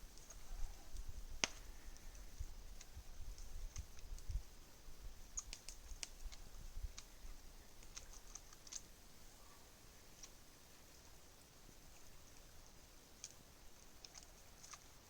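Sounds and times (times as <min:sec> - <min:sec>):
campfire wood crackling: 0:00.0 - 0:15.0
sharp pops: 0:01.4 - 0:01.7.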